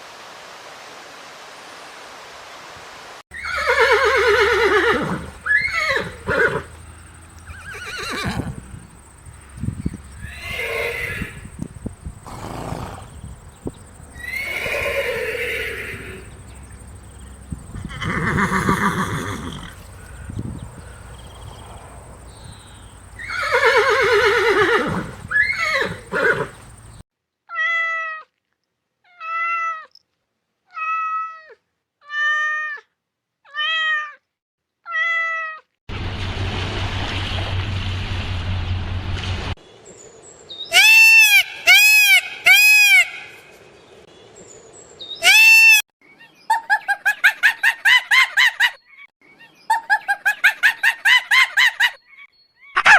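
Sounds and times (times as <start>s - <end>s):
loud arching animal calls: 3.3s - 6.8s, 7.4s - 9.1s, 10.1s - 11.5s, 14.1s - 27.0s, 40.7s - 43.5s, 51.8s - 52.9s
rough noisy animal call: 14.1s - 27.0s.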